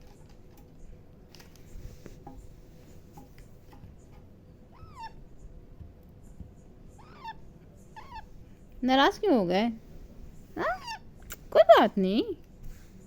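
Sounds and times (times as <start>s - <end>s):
parakeet calls: 4.7s - 5.3s, 6.9s - 8.4s, 10.5s - 11.2s.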